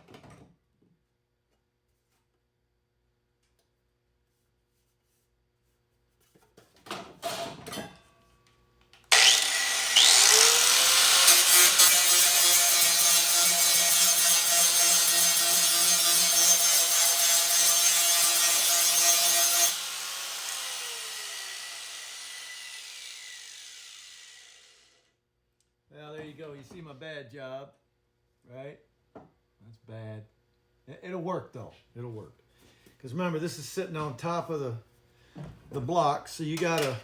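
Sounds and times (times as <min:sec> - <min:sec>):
power tool whining and grinding: 0:09.1 - 0:25.0.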